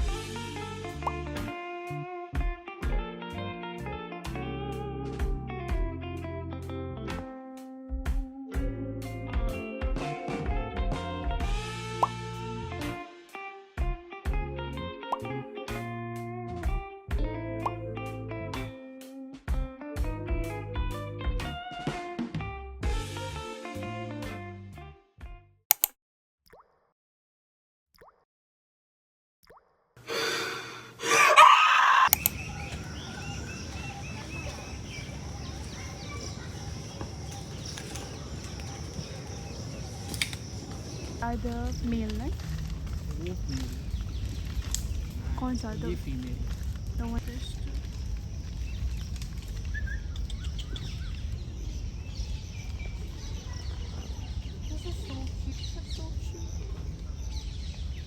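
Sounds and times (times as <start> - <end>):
birds chirping: 31.0 - 58.0
steady low rumble: 32.2 - 58.0.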